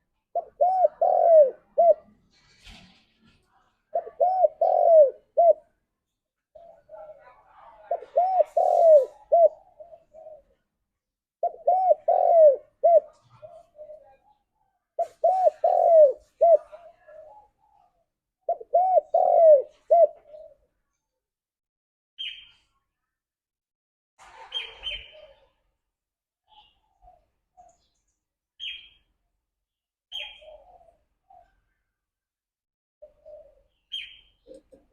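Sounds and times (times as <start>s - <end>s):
dove cooing: 0.0s - 2.2s, 3.9s - 5.8s, 6.5s - 10.6s, 11.4s - 20.8s, 24.6s - 25.6s, 30.1s - 31.8s, 33.0s - 34.9s.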